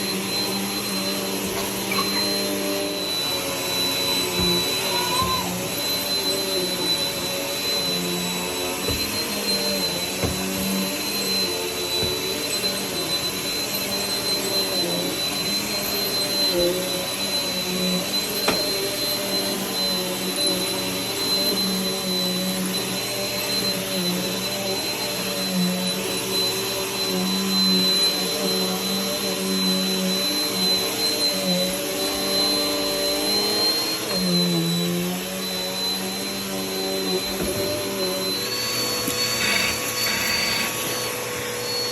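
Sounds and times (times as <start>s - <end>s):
vacuum cleaner running: 0.0s - 41.9s.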